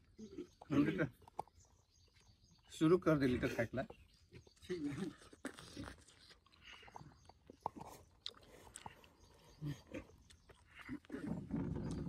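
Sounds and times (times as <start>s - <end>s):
crunchy bites and chewing: 4.1s - 12.0s.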